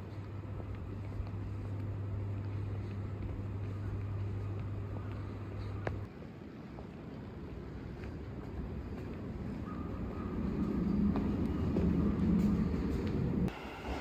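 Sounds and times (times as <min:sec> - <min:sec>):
low vehicle hum: 0:00.0 - 0:06.1
rumbling background noise: 0:00.0 - 0:14.0.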